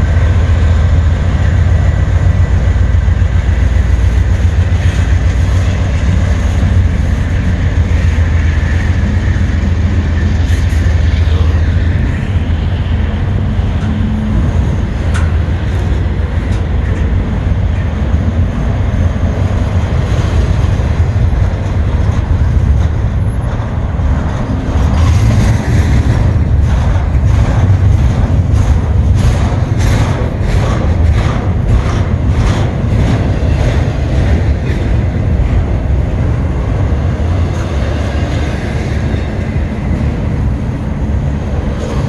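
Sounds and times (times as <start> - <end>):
train wheels rumbling on rail: 0.0 - 42.0.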